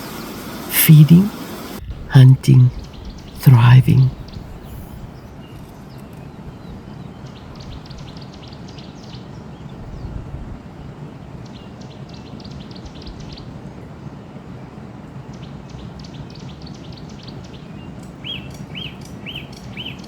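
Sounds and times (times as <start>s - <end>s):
low background noise: 0.0s - 20.0s.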